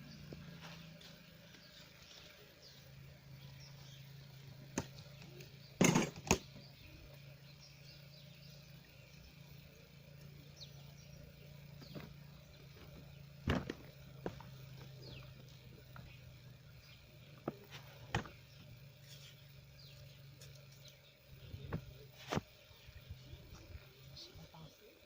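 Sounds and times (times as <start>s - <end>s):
steady low hum: 0.0s - 25.0s
sharp knocks and clatters: 5.8s - 6.6s, 11.8s - 14.6s.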